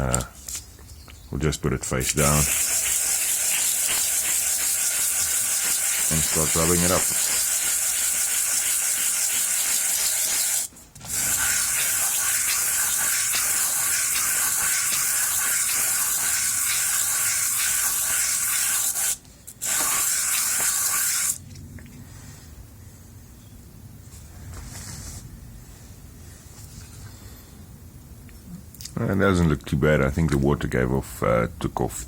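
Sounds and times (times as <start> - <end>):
wet sanding metal on sandpaper: 2.0 - 21.4.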